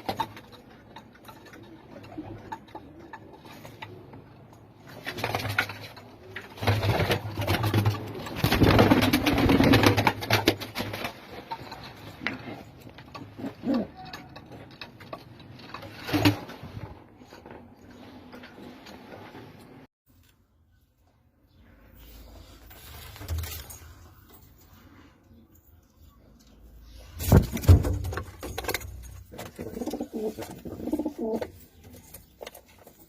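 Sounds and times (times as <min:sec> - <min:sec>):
pigeons cooing: 0:29.4 - 0:31.6.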